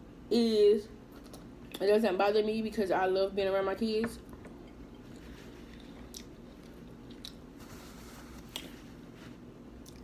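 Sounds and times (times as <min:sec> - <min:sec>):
person chewing food: 0:04.6 - 0:07.5, 0:09.8 - 0:10.0.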